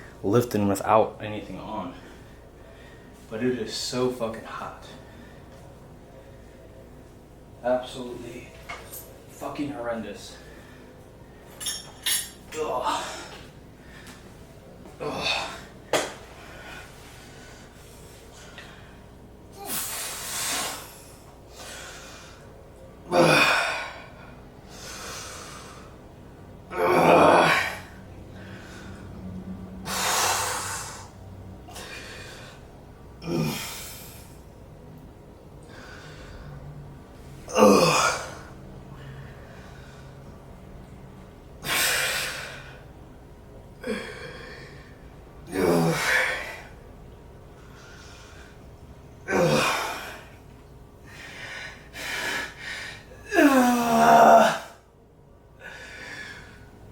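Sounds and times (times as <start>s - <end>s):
man groaning: 12.5s - 13.4s, 15.0s - 15.6s, 23.1s - 24.0s, 26.7s - 27.9s, 33.2s - 33.8s, 37.5s - 38.5s, 45.5s - 46.5s, 49.3s - 50.2s, 53.2s - 54.8s
man breathing hard: 15.0s - 26.0s, 27.4s - 29.2s, 29.8s - 34.4s, 35.6s - 36.7s, 47.6s - 48.8s, 51.0s - 53.8s, 55.6s - 56.8s.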